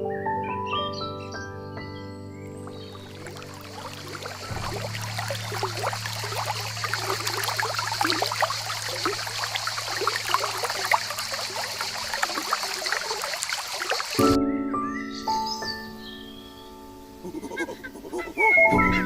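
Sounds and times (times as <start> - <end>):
water trickling and bubbling: 2.5 - 14.4
low steady hum: 3.0 - 14.0.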